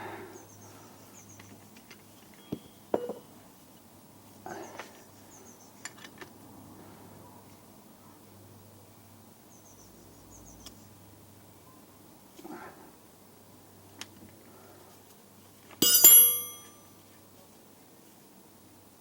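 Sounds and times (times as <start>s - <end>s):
metal tools clinking: 15.8s - 16.9s.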